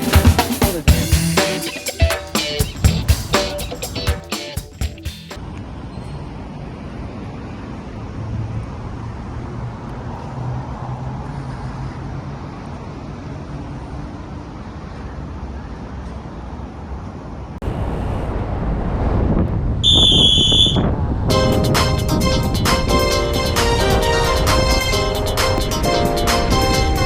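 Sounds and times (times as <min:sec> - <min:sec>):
music: 0:00.0 - 0:05.4, 0:21.3 - 0:27.0
road and wind noise: 0:05.1 - 0:27.0.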